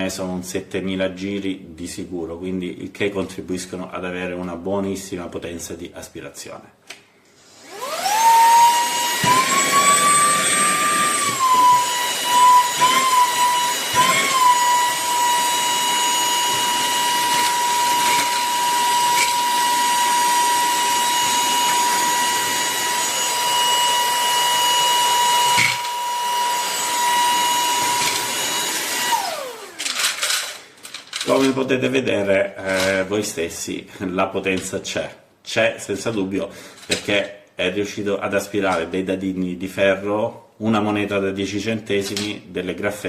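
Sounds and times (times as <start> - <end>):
handheld vacuum motor whine: 7.4 - 30.6.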